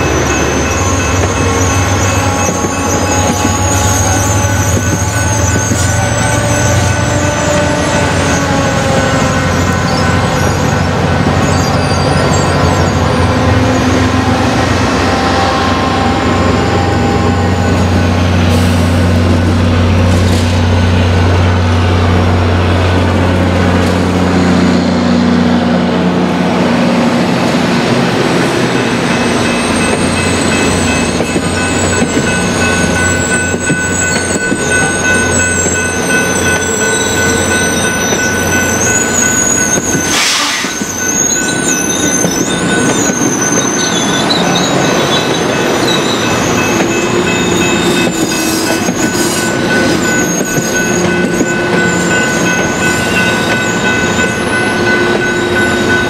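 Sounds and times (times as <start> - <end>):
train wheel squeal: 0.0 - 19.1, 28.8 - 56.0
locomotive engine droning: 0.0 - 56.0
rumble of train cars: 0.0 - 56.0.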